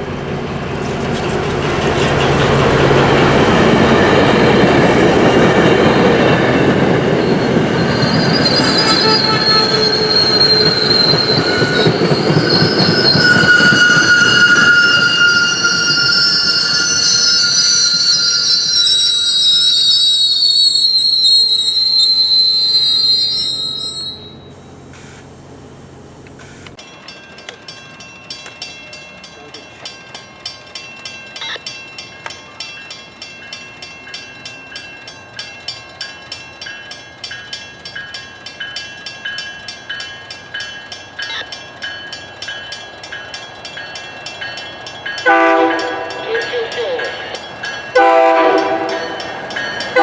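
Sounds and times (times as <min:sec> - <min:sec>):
train wheels squealing: 0:00.8 - 0:25.2
railroad crossing bell ringing: 0:00.9 - 0:24.8, 0:26.8 - 0:50.0.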